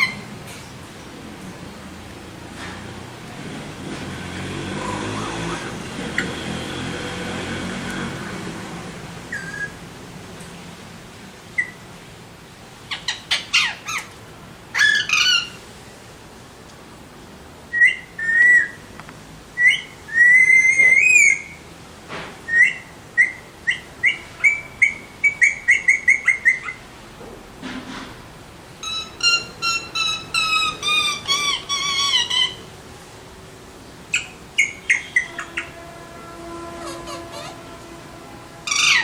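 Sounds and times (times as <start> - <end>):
parakeets calling shrilly: 9.3 - 9.8, 12.9 - 15.6, 28.8 - 32.8, 34.1 - 39.0.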